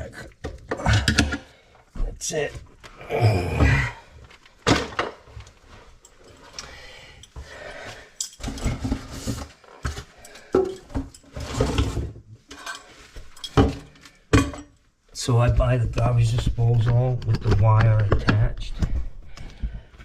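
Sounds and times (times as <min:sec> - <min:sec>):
tools and metal parts clinking: 0:08.2 - 0:09.1, 0:12.5 - 0:14.8.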